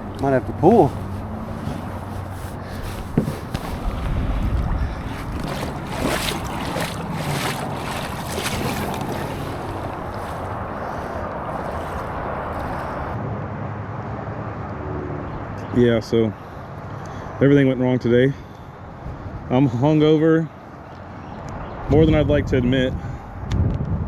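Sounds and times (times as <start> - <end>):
water splashing around kayak: 0.0 - 13.2
wind buffeting microphone: 0.0 - 13.2, 21.4 - 24.0.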